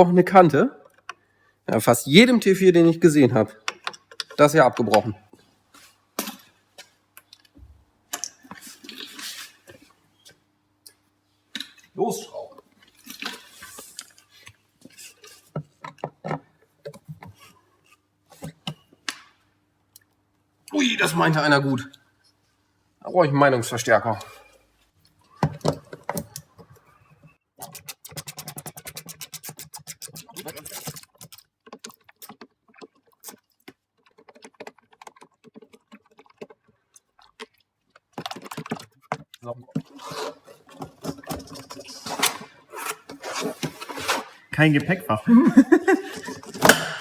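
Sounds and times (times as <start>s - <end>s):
tools clicking and knocking: 3.6s - 5.1s, 27.6s - 39.4s.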